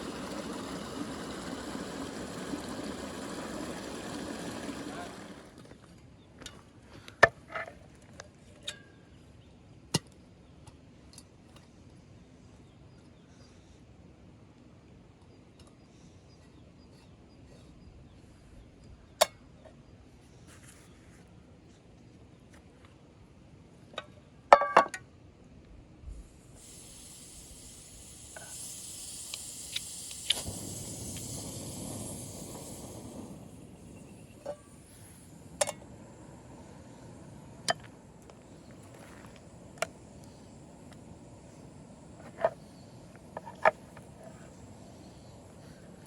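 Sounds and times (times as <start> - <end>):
steady high hiss: 0.0 - 5.6, 26.1 - 46.0.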